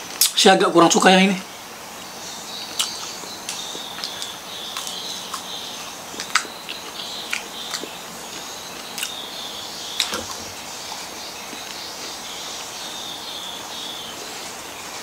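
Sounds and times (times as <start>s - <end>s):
insects chirring: 0.0s - 15.0s
crunchy chewing: 2.6s - 13.2s.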